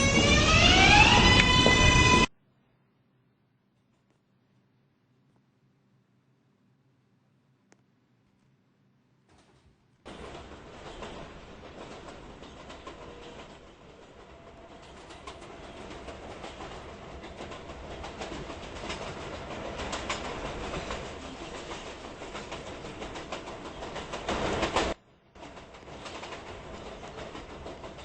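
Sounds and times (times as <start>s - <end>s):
subway train rumbling: 0.0s - 2.4s, 10.1s - 28.0s
wheels clicking over rail joints: 9.4s - 28.0s.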